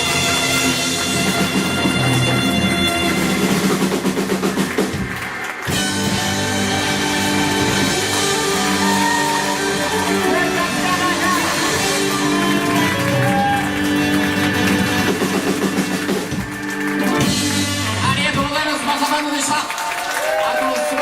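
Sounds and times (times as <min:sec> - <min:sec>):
live band playing pop-rock: 0:00.0 - 0:19.2.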